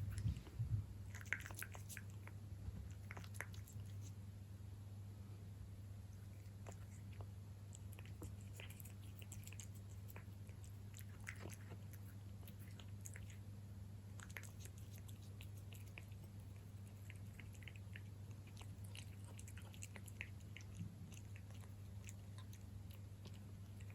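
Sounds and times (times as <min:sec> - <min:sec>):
low hum: 0:00.0 - 0:01.1
cat chewing and lapping food: 0:00.0 - 0:04.2, 0:06.0 - 0:23.9.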